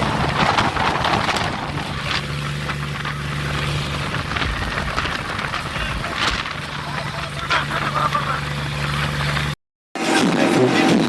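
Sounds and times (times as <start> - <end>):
wind on microphone: 0.0 - 6.8
tractor diesel engine running: 0.0 - 9.6.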